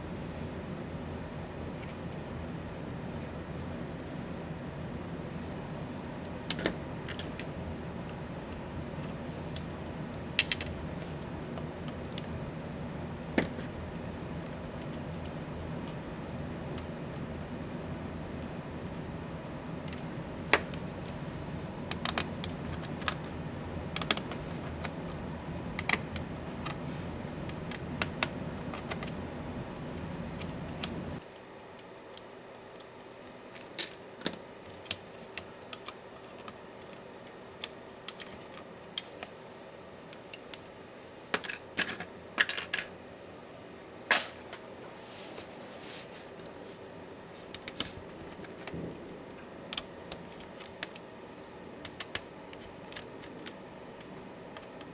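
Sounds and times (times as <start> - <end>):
low steady hum: 0.0 - 31.2, 35.3 - 54.9
plastic parts being handled: 16.8 - 31.2.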